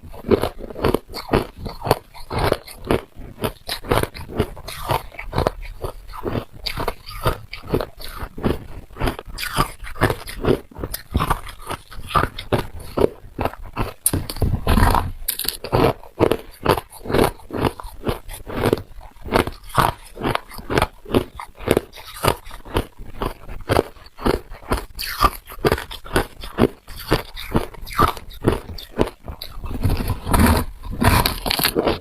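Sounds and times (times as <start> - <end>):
person crunching ice: 0.0 - 32.0.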